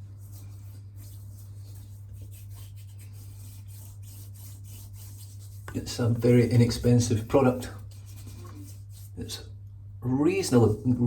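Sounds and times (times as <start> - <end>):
shaving cream rubbed by hand: 0.0 - 9.4
steady low hum: 0.0 - 11.0.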